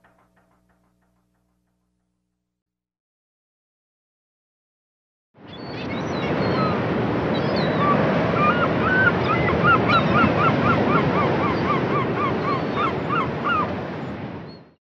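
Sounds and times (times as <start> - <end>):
birds calling: 5.5 - 13.7.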